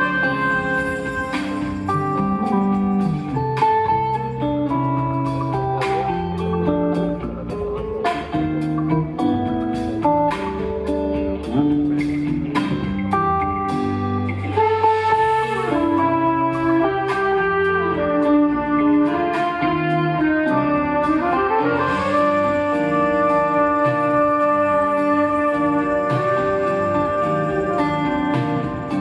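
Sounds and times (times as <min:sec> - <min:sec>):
horns: 0:00.0 - 0:04.2, 0:13.4 - 0:29.0
bass: 0:00.0 - 0:29.0
drums: 0:00.0 - 0:29.0
guitar: 0:00.0 - 0:29.0.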